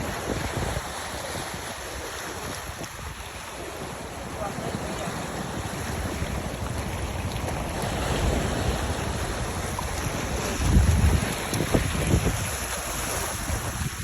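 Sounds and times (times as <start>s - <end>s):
sea waves: 0.0s - 14.0s
wind buffeting microphone: 0.0s - 14.0s.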